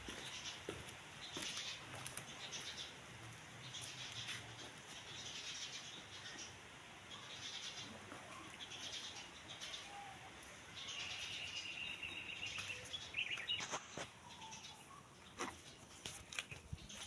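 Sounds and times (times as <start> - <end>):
birds chirping: 0.0 - 17.0
sharp bird calls: 3.7 - 15.0.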